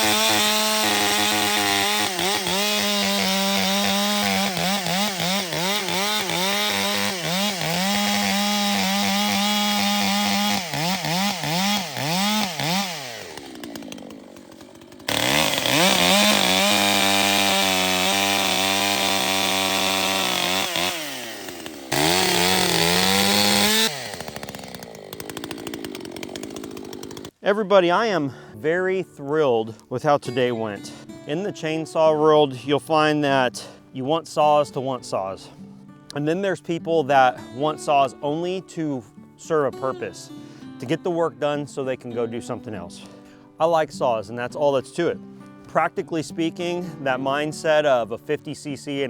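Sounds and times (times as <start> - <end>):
chainsaw cutting wood: 0.0 - 27.4, 29.7 - 43.9, 44.5 - 49.0.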